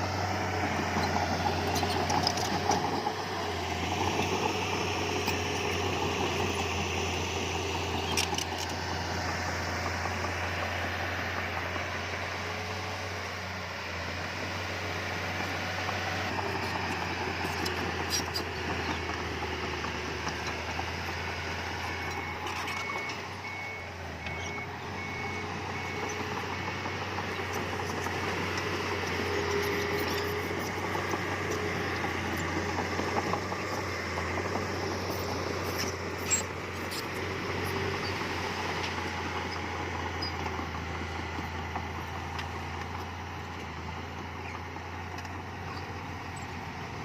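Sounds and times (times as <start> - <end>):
heavy machinery diesel engine: 0.0 - 47.0.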